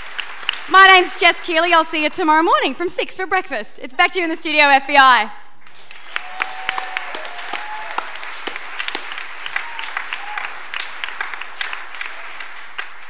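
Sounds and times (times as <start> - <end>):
audience applauding: 0.0 - 2.1, 5.6 - 13.0.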